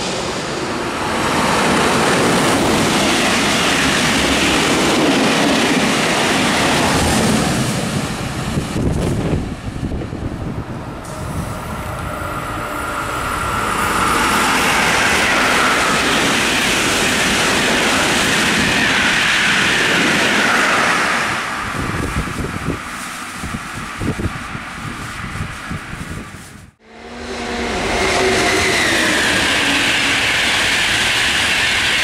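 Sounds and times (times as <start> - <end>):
train passing at speed: 0.0 - 32.0.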